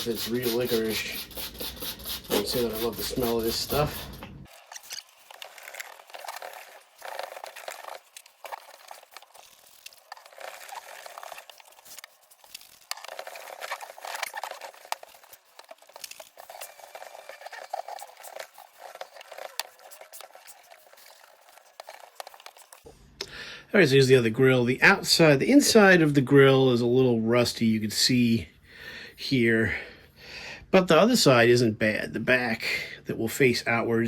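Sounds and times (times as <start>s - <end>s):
scratchy rubbing on metal grill: 0.0s - 4.2s, 12.8s - 22.8s.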